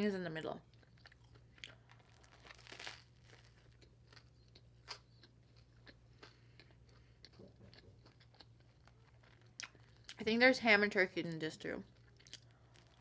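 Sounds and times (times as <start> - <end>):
chewing crunchy bread: 0.7 - 10.2, 11.8 - 13.0.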